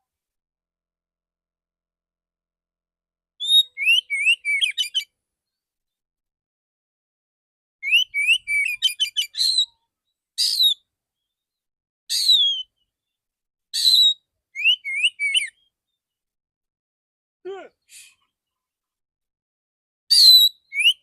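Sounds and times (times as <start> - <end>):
rising whistles of songbird: 3.4 - 5.1, 7.8 - 9.8, 10.4 - 10.8, 12.1 - 12.8, 13.8 - 15.8, 20.1 - 21.0
harsh rasping bird calls: 12.1 - 12.7.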